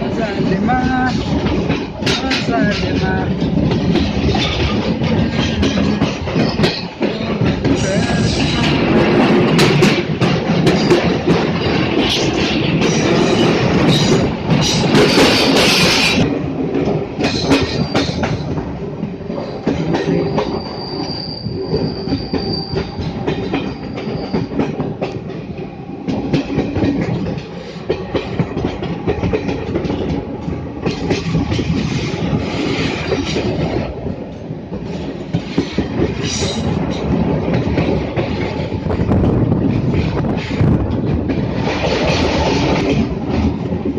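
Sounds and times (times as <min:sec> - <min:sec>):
train wheels clacking on rails: 0:00.0 - 0:43.9
high wheel squeal: 0:20.1 - 0:24.6.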